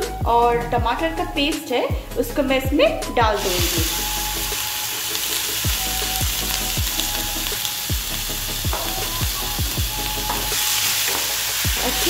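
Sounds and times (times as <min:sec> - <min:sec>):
background music with low thumps: 0:00.0 - 0:04.7, 0:05.6 - 0:12.0
paste sizzling in hot oil: 0:03.4 - 0:12.0.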